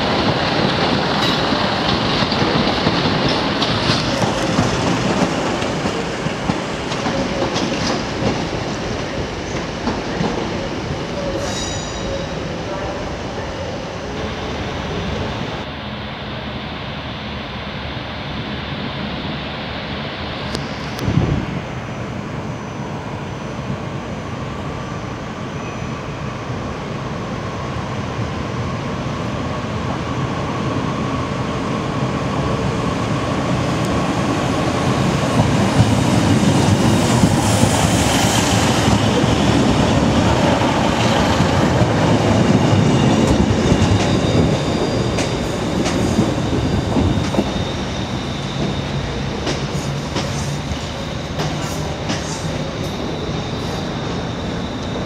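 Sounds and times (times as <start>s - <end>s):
train wheels rumbling and clacking: 0.0s - 14.4s, 29.8s - 55.0s.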